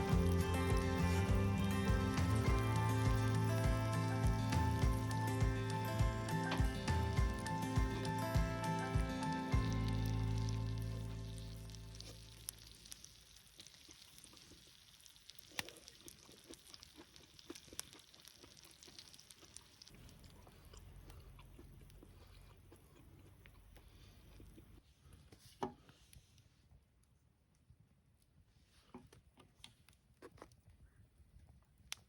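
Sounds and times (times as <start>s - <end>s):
music: 0.0s - 12.0s
faint crackling and clicking: 27.0s - 32.0s.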